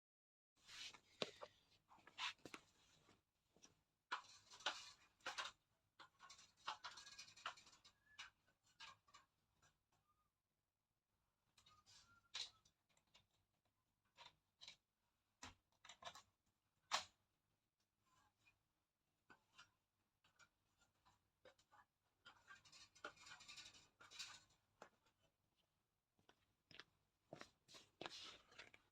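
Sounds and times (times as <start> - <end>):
faint squeaks: 11.6 - 12.7.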